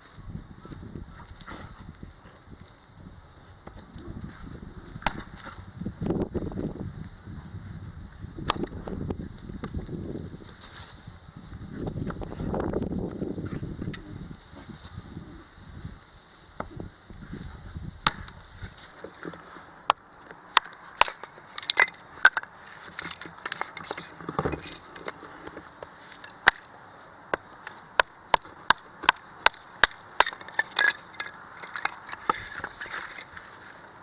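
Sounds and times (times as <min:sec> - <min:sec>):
wood cracking and snapping: 0:20.6 - 0:25.2, 0:26.1 - 0:26.7, 0:27.3 - 0:33.5.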